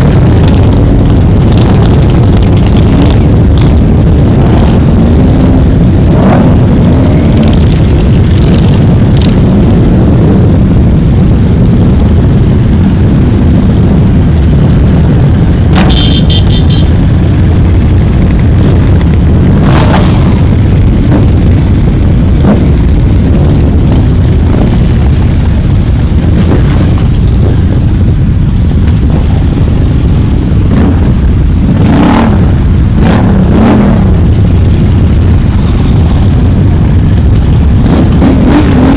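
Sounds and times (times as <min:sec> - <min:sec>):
motorcycle engines rumbling: 0:00.0 - 0:38.9
motorcycles revving and passing: 0:00.0 - 0:38.9
horn beeps: 0:15.7 - 0:17.0.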